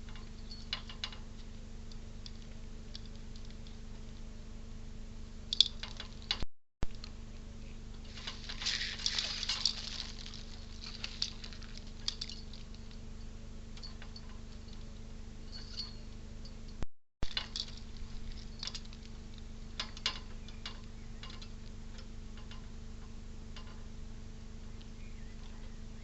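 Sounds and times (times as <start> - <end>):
steady low hum: 0.0 - 26.0
crackling rustling flurry: 8.0 - 13.2.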